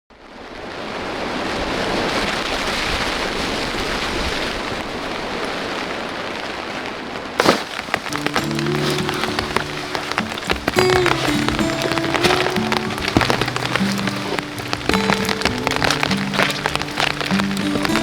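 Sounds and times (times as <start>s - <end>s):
heavy rain with wind: 0.1s - 18.0s
music: 8.1s - 18.0s
sharp dripping ticks: 8.1s - 18.0s.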